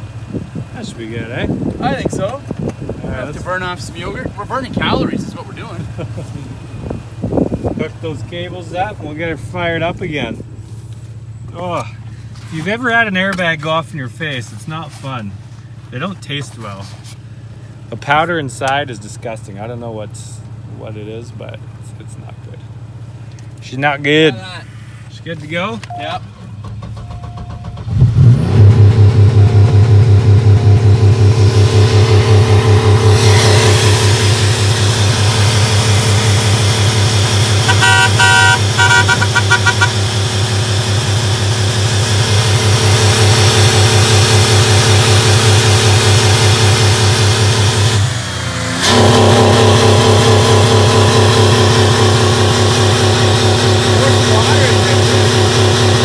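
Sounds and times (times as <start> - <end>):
car engine starting and running: 0.0 - 56.0
high stuttering tone: 30.3 - 40.1.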